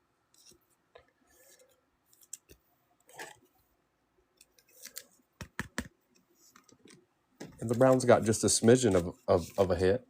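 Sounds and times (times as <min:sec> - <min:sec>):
soft rustle of cards shuffled: 0:04.4 - 0:10.0.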